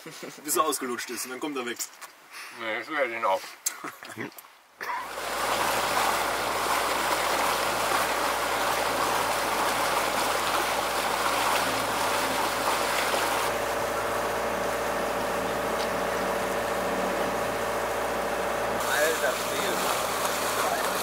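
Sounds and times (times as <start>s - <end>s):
engine hum: 5.0s - 21.0s
water rushing and splashing: 5.0s - 21.0s.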